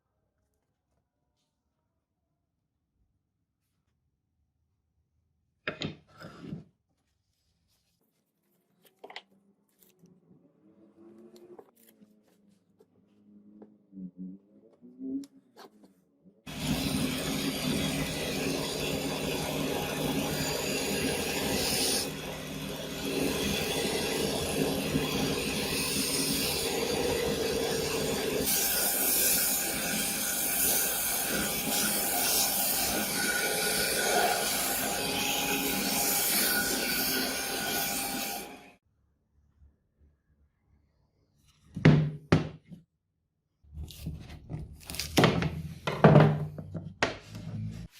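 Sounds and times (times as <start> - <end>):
power tool grinding: 16.5 - 38.7.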